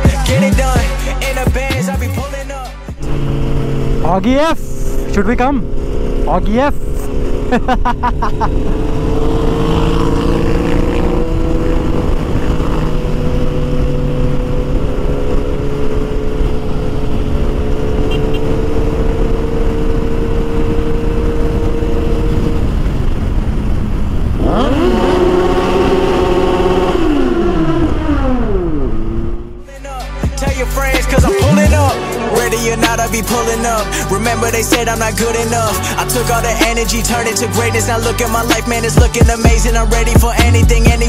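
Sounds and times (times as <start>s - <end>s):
motorcycle engine running: 2.9s - 37.6s
wind rush: 3.0s - 29.6s.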